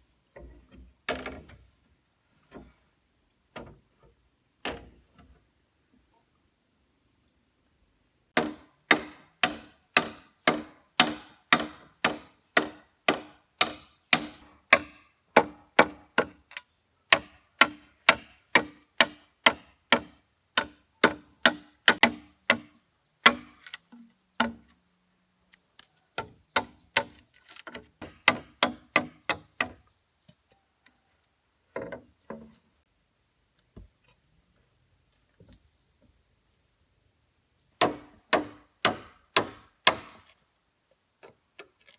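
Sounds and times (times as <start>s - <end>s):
tool chopping wood: 8.4s - 23.8s, 26.2s - 29.8s, 37.8s - 40.3s.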